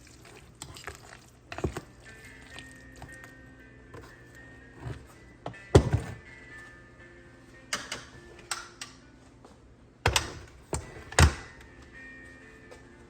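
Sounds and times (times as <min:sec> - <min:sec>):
soft background music: 0:00.0 - 0:13.0
kitchen knocks and clatters: 0:05.7 - 0:06.2.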